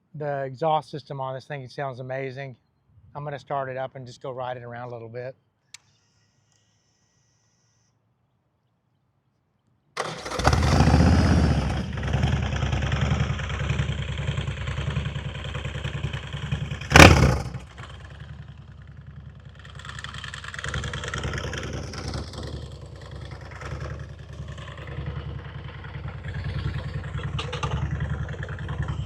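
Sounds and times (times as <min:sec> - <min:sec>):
motorcycle engine revving: 0:10.0 - 0:29.0
loud blast: 0:15.5 - 0:18.6.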